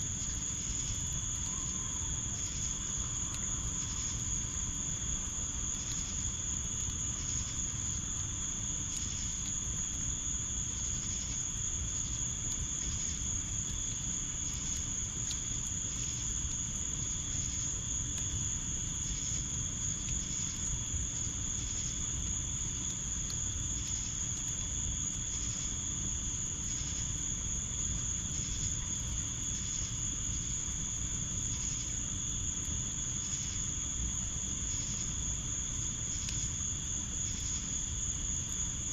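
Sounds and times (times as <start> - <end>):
crickets trilling: 0.0 - 38.9
pulsing insect call: 0.2 - 6.3.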